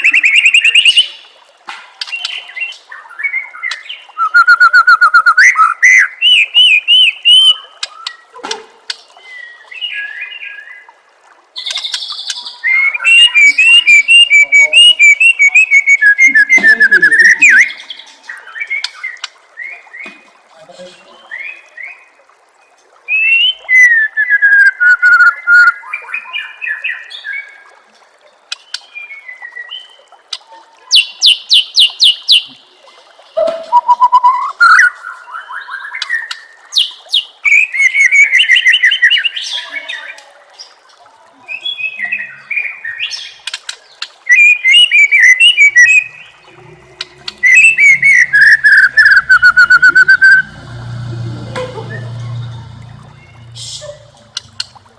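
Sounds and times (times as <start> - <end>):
songbird singing whistles: 2.2 - 8.2, 11.6 - 20.1, 23.1 - 27.1, 33.4 - 39.7, 44.2 - 46.3, 47.3 - 50.5.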